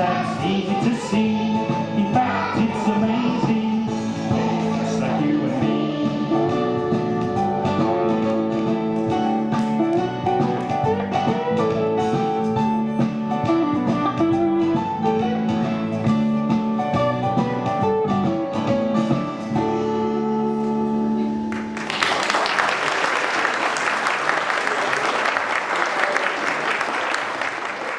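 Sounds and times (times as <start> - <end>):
audience applause: 21.5 - 27.9.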